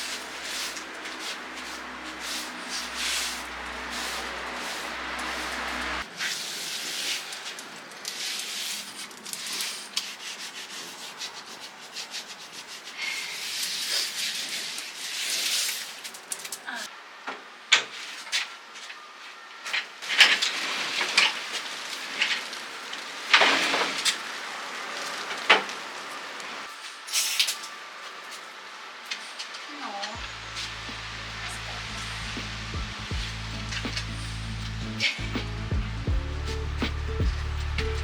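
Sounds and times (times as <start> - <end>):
hand rubbing over furniture: 0.0 - 6.0.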